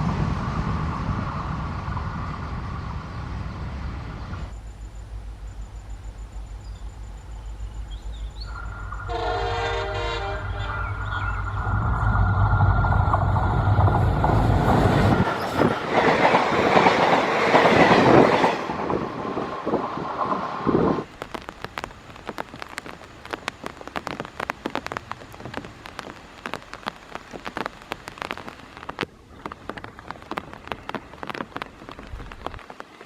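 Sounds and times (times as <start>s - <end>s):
low engine rumble: 0.0s - 15.9s
train rushing past: 0.0s - 21.1s
train horn: 9.1s - 11.4s.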